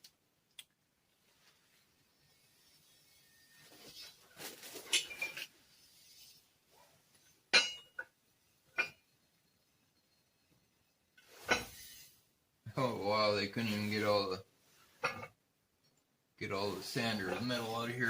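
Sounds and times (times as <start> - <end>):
rustling and scraping: 1.2 - 8.0, 11.2 - 12.2, 13.5 - 15.4, 16.4 - 18.0.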